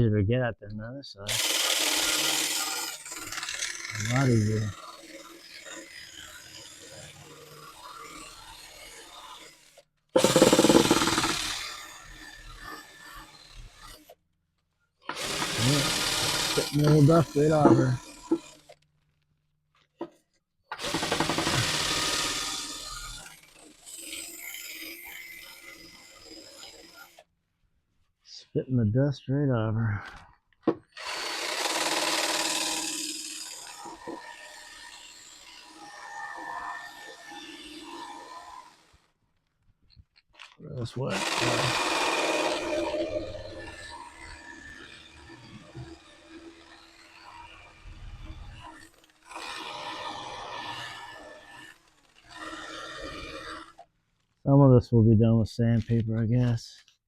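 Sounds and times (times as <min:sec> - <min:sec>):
strip wheel grinding metal: 0:01.3 - 0:14.2, 0:15.1 - 0:18.8, 0:31.0 - 0:39.1, 0:40.4 - 0:53.8.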